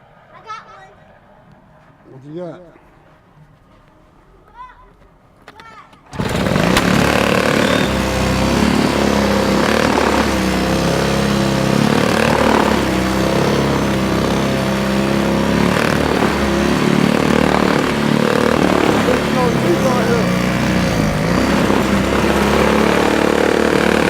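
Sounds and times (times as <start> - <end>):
motor engine running loudly: 6.2 - 24.0.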